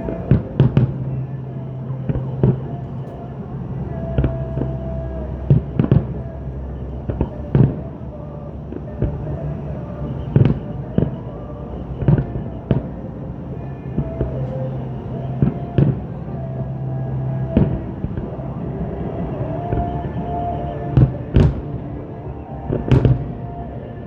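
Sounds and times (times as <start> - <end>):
music playing: 0.0 - 24.0
fireworks bangs: 17.5 - 21.8, 22.7 - 23.6.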